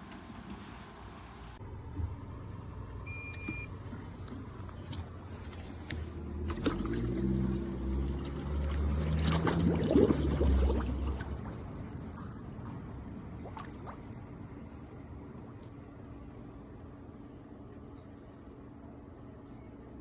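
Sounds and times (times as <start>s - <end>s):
pool cleaner motor hum: 0.0s - 20.0s
water gurgling and bubbling: 6.2s - 15.1s.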